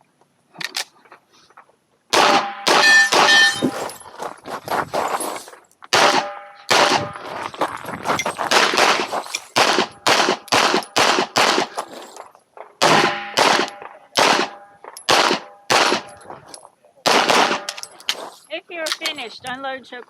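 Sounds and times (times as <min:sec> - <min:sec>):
handgun shots: 0:02.1 - 0:03.7, 0:05.9 - 0:07.2, 0:08.5 - 0:11.8, 0:12.8 - 0:16.2, 0:17.1 - 0:17.9
metallic ring: 0:02.8 - 0:04.2.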